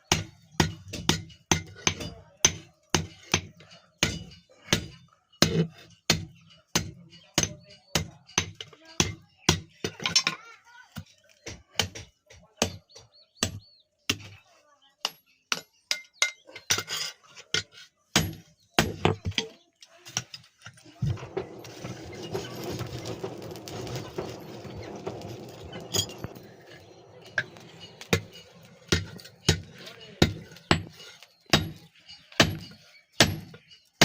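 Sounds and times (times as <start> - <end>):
steady rasping noise: 21.0 - 33.5
hammer striking iron on anvil: 24.2 - 33.6.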